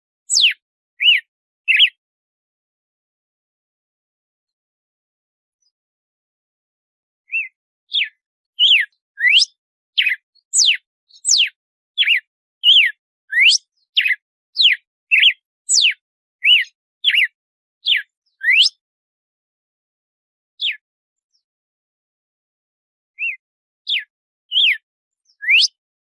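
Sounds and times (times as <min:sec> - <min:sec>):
bird singing whistled notes: 0:00.3 - 0:02.0, 0:07.3 - 0:18.8, 0:20.6 - 0:21.5, 0:23.2 - 0:25.8.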